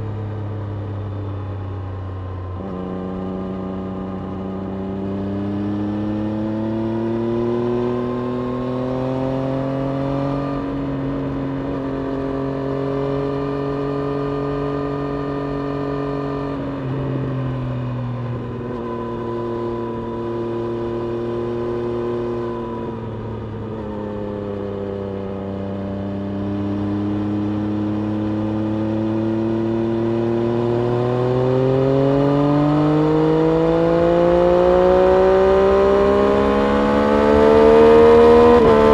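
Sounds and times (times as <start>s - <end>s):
motorcycle engine revving: 26.2s - 38.9s.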